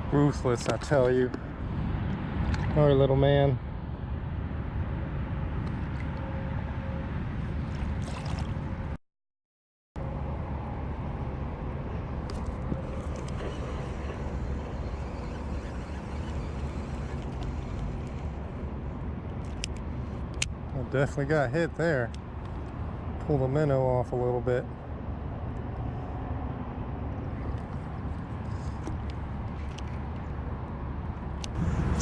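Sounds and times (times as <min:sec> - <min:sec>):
water lapping against kayak: 0:07.6 - 0:08.8, 0:12.4 - 0:18.5.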